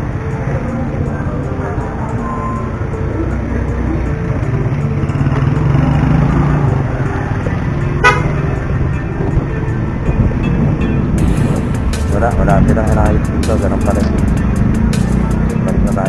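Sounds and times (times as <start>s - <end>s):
vehicle engine rumble: 0.0s - 16.0s
vehicle horn toot: 8.0s - 8.9s.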